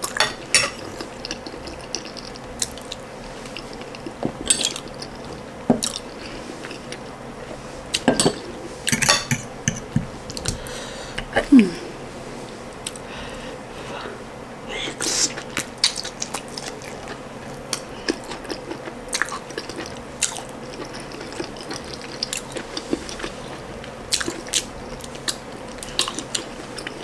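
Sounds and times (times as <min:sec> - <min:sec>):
person chewing: 0:00.0 - 0:07.1, 0:14.7 - 0:27.0.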